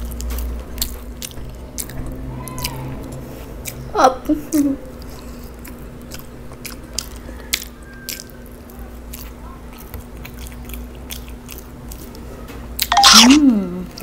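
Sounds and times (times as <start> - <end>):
chewing fries: 0.0 - 14.0
wet mouth clicks: 12.8 - 14.0.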